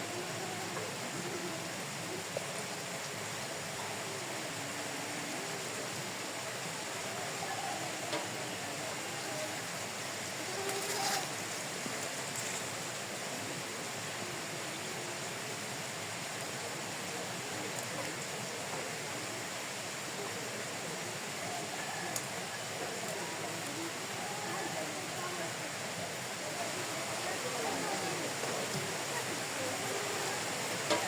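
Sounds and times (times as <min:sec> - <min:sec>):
faint distant voices: 0:00.0 - 0:31.0
loud rustle: 0:10.5 - 0:12.7.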